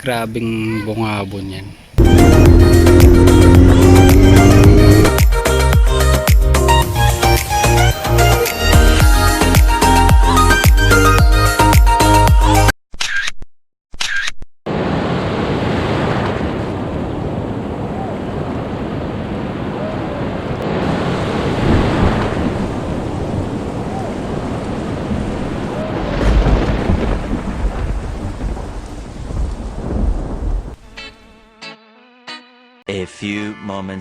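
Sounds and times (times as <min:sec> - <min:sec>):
deep rumble: 0:02.0 - 0:05.2
heavy rain pouring: 0:02.0 - 0:05.2, 0:20.6 - 0:30.7
rushing wind: 0:15.2 - 0:30.8.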